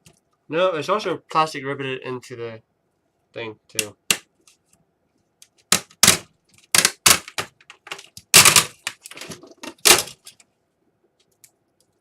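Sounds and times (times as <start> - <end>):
plastic cracking and snapping: 5.7 - 10.5.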